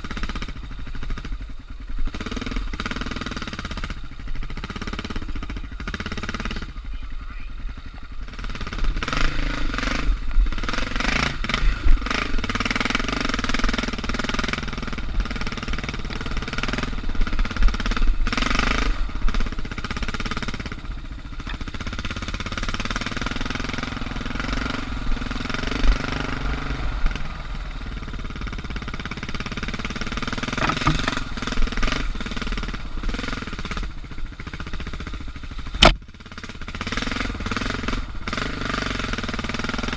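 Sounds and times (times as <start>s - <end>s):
motorcycle engine revving: 0.0s - 39.9s
sharp thumps: 30.4s - 31.7s, 35.8s - 36.0s.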